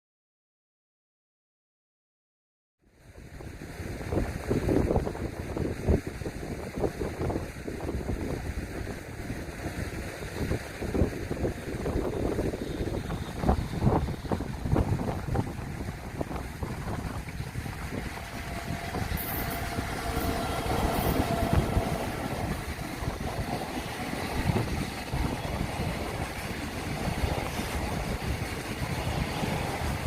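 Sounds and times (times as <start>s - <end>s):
train wheels rumbling and clattering: 8.7s - 30.0s
faint whine: 16.9s - 25.7s.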